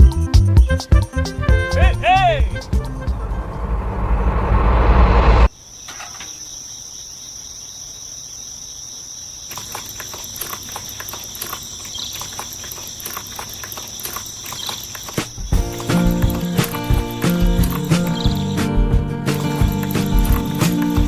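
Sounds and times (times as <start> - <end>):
insects trilling: 5.5 - 21.0
light clicks and ticks: 9.5 - 18.2.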